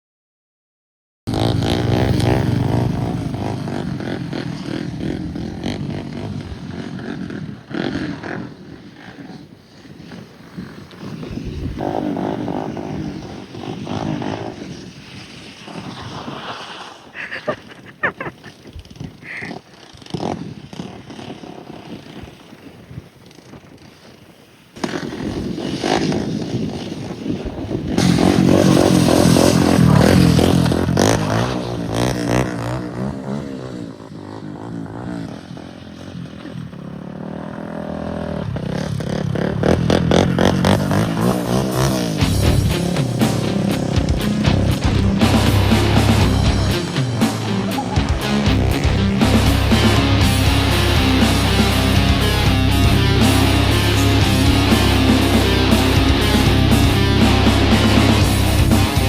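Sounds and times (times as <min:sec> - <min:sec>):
quad engine revving: 0:01.3 - 0:09.4, 0:27.9 - 0:59.0.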